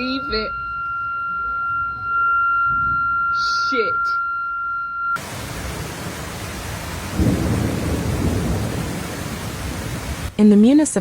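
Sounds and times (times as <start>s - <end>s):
steady high tone: 0.0s - 6.6s
heavy rain hissing: 5.2s - 10.4s
thunder rumble: 5.2s - 10.4s.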